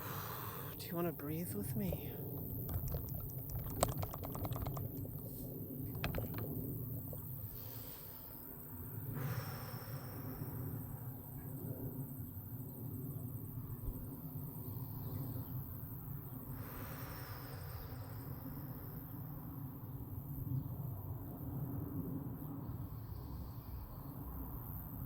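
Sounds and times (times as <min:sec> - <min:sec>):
slow deep breath: 0:00.0 - 0:00.8, 0:07.4 - 0:10.9, 0:16.5 - 0:18.5
insects chirring: 0:00.0 - 0:25.0.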